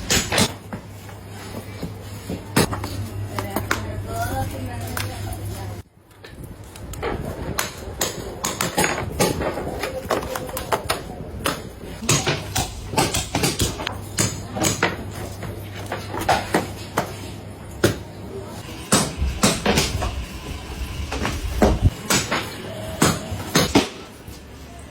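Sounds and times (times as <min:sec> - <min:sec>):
knocks and clacks of work: 0:07.0 - 0:17.2, 0:17.8 - 0:24.2
steady low hum: 0:11.1 - 0:24.9.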